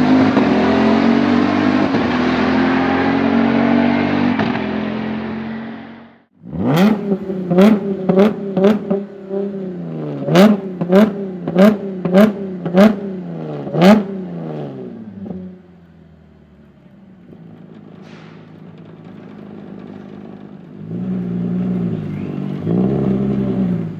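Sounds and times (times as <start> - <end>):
car engine revving with cracks: 0.0 - 23.9
car engine idling: 14.4 - 23.9.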